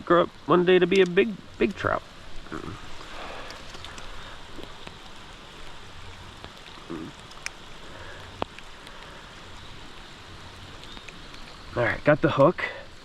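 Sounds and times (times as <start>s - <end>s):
creek water running: 0.0s - 13.0s
rain falling: 0.0s - 13.0s
sharp ticks: 8.4s - 9.1s.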